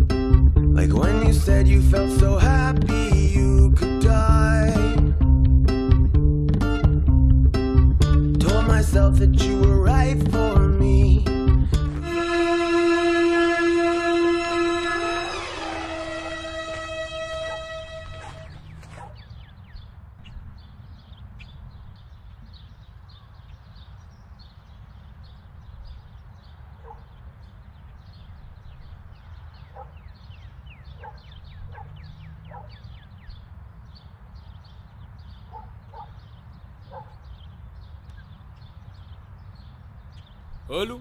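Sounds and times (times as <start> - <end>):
dog barking faint yaps: 17.4 - 19.3, 26.8 - 27.1, 29.7 - 30.0, 30.9 - 32.8, 35.5 - 36.2, 36.8 - 37.2.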